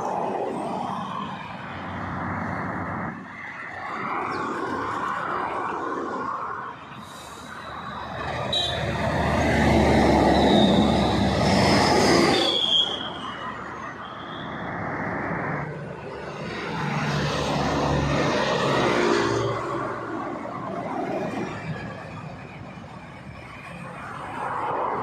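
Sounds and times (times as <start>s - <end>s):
heavy vehicles driving past: 0.0s - 14.0s, 14.6s - 25.0s
high squeal: 10.1s - 14.7s.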